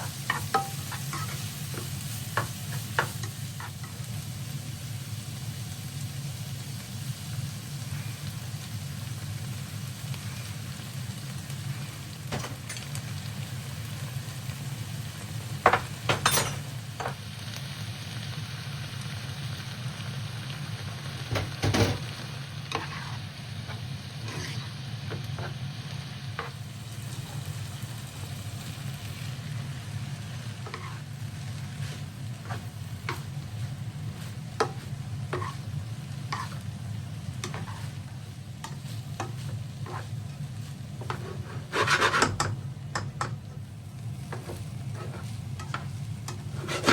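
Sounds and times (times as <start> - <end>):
food sizzling in a pan: 0.0 - 46.9.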